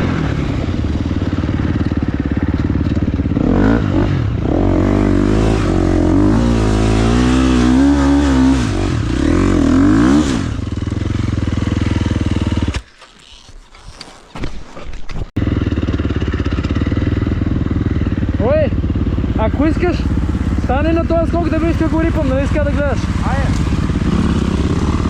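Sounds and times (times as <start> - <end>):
motocross bike engine revving: 0.0 - 12.8, 15.4 - 25.0.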